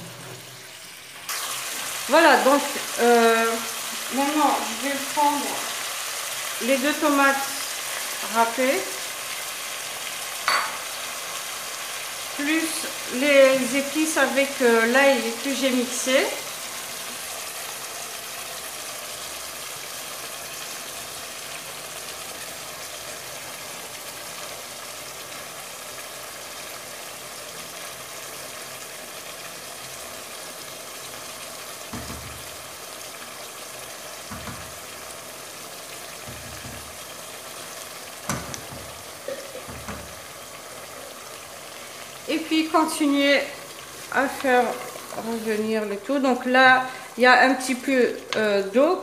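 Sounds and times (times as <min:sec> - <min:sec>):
food sizzling in a pot: 0:00.0 - 0:49.0
spoon knocking against pot: 0:10.4 - 0:10.9, 0:36.2 - 0:36.9.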